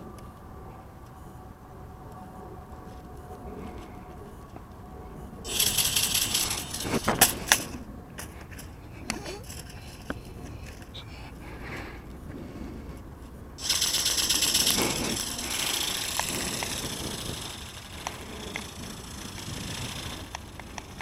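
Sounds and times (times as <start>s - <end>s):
ornithopter rattling buzz: 5.5s - 10.1s, 13.6s - 21.0s.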